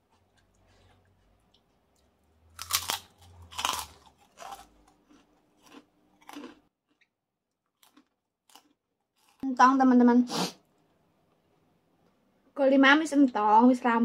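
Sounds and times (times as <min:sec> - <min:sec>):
crunchy chewing: 0:00.0 - 0:09.4.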